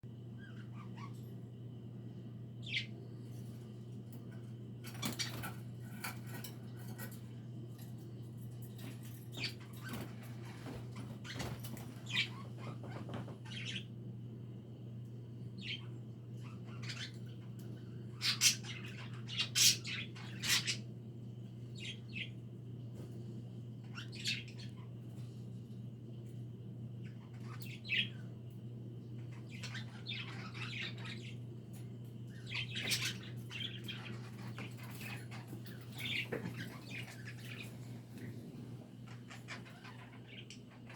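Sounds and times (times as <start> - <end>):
steady low hum: 0.0 - 40.9
budgerigars chirping: 2.6 - 2.9, 12.0 - 13.8, 15.6 - 17.2, 18.1 - 20.8, 23.9 - 24.8, 29.4 - 31.4, 32.4 - 37.8, 39.1 - 40.9.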